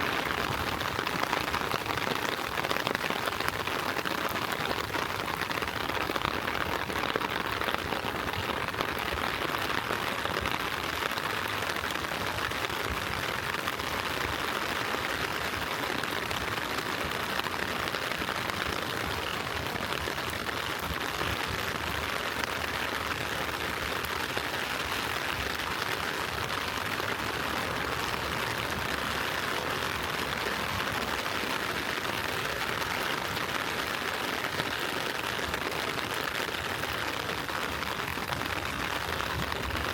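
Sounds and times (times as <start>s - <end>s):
rain on pavement: 0.0s - 39.9s.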